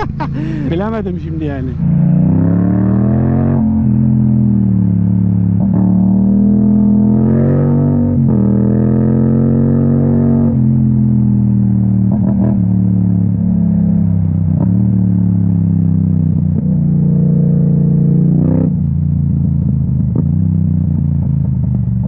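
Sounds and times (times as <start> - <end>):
motorcycle engine running: 8.3 - 22.0.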